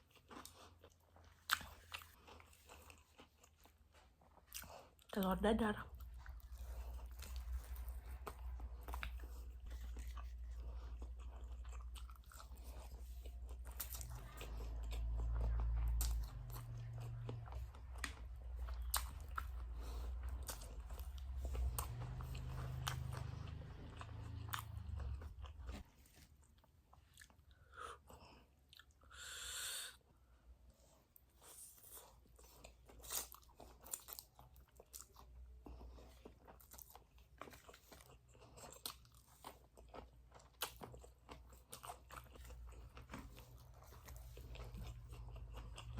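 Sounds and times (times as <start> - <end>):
chewing and biting noodles: 0.0 - 5.2, 5.9 - 29.3, 31.2 - 45.9
low rumble: 5.8 - 25.8.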